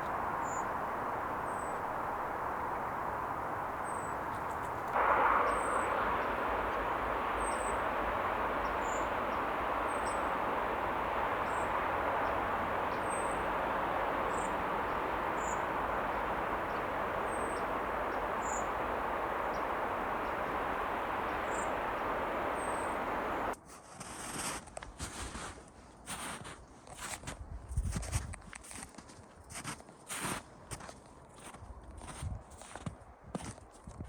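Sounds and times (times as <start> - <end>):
steady rushing noise: 0.0 - 23.6.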